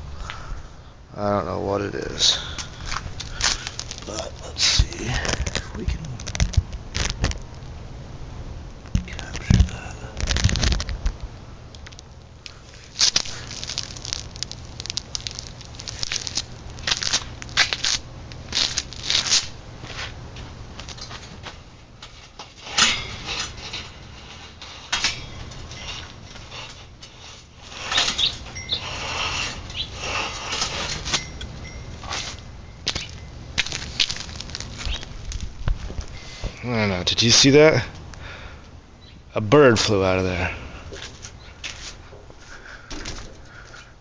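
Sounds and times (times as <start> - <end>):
bird scratching and fluttering: 11.8 - 20.2, 22.2 - 36.2.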